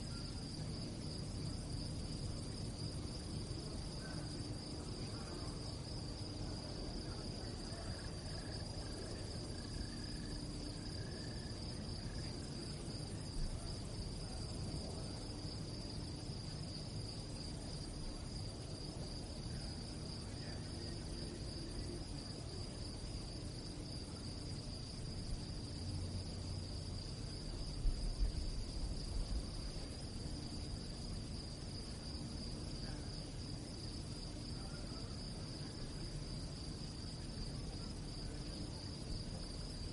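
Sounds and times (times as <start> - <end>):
crickets chirping: 0.0 - 39.9
low background rumble: 0.0 - 39.9.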